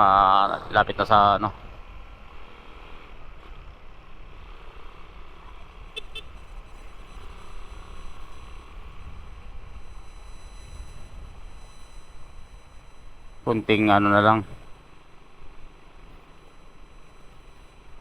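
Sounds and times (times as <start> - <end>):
traffic noise: 0.0 - 18.0
motorcycle engine: 1.5 - 18.0
wind rumble on microphone: 5.2 - 13.4
horn beeps: 5.9 - 15.1.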